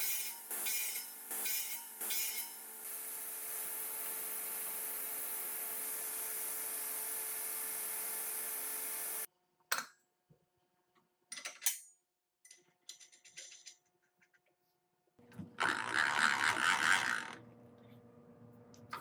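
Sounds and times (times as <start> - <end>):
woodworking power tool hissing: 2.0 - 9.3.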